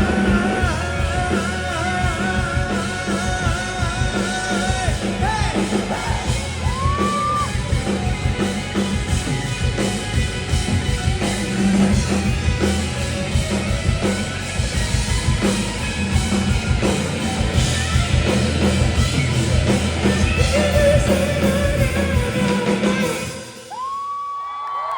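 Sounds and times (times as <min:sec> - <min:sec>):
person singing: 0:00.0 - 0:07.4, 0:20.4 - 0:23.7
live rock band playing: 0:00.0 - 0:24.0.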